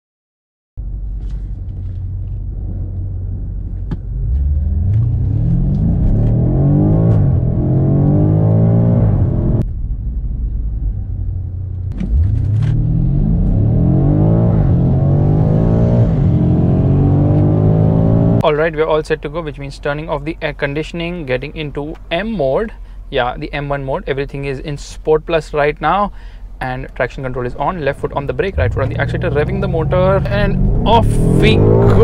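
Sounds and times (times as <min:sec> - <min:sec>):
car engine accelerating hard: 0:01.2 - 0:09.7, 0:11.8 - 0:18.7, 0:27.3 - 0:32.0.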